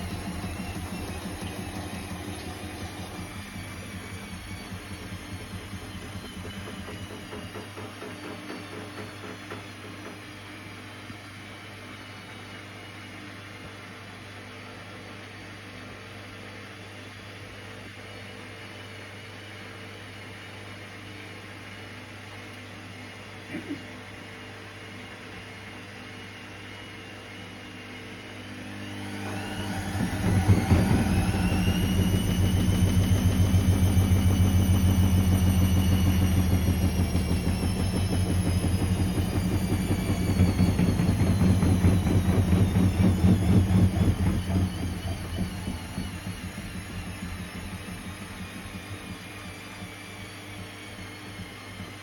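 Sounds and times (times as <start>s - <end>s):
washing machine drum knocking: 0.0s - 10.3s, 29.6s - 49.5s
washing machine motor whine: 0.0s - 52.0s
low steady hum: 27.9s - 52.0s.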